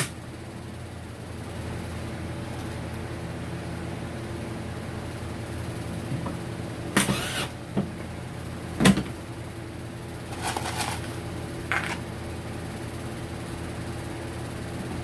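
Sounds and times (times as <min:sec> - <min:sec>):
steady low hum: 0:00.0 - 0:15.0
objects knocking and clattering: 0:11.7 - 0:12.0.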